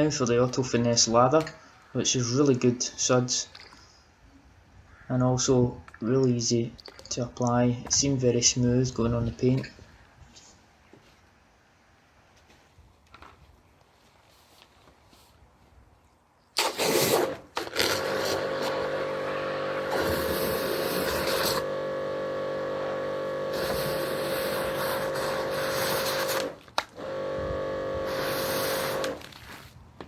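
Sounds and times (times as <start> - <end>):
pressure washer motor hum: 17.2 - 29.3
pressure washer spray hissing: 17.9 - 21.7, 22.8 - 26.6, 28.0 - 29.2.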